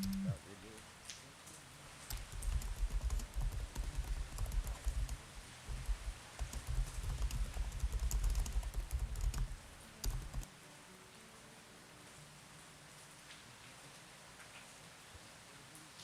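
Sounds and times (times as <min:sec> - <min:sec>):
rain: 0:00.0 - 0:16.0
low thumps: 0:02.2 - 0:09.6.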